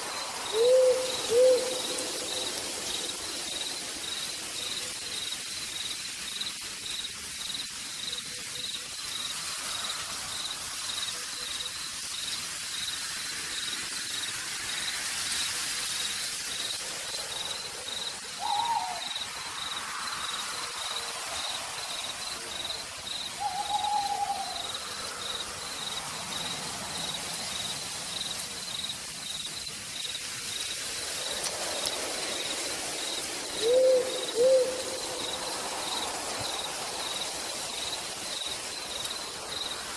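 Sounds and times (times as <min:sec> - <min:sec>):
insect chirping: 0:00.0 - 0:39.9
steady rain: 0:00.0 - 0:39.9
owl hooting: 0:00.5 - 0:02.0, 0:18.4 - 0:19.2, 0:23.4 - 0:24.7, 0:33.6 - 0:35.0.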